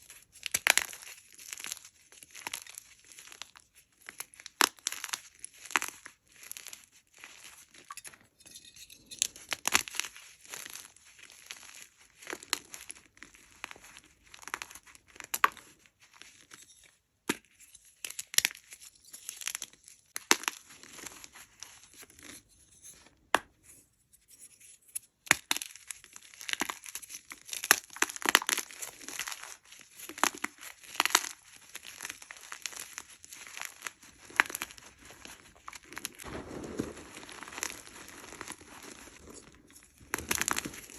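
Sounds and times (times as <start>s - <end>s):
chalk crunching by hand: 27.8s - 40.9s.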